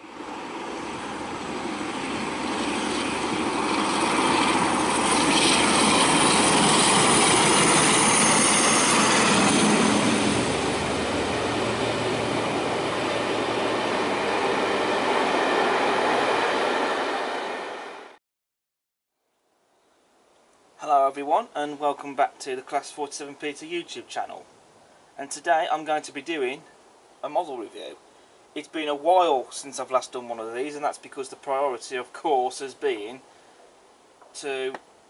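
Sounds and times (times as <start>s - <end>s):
passenger train passing: 0.0s - 18.2s.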